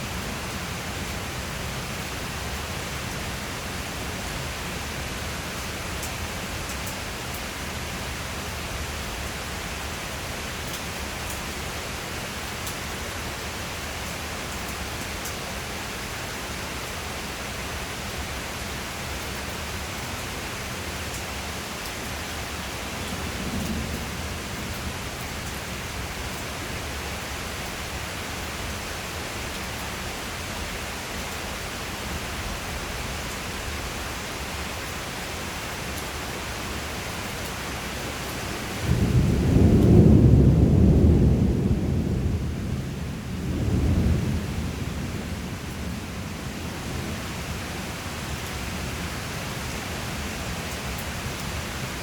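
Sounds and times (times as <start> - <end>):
steady rain hissing: 0.0 - 52.0
thunder crack and rumble: 23.0 - 25.6, 38.8 - 47.1.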